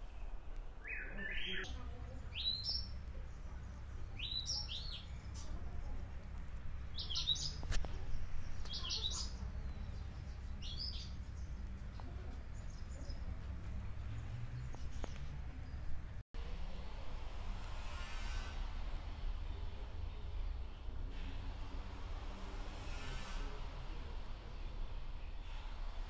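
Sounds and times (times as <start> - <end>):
birds chirping: 0.0 - 16.2.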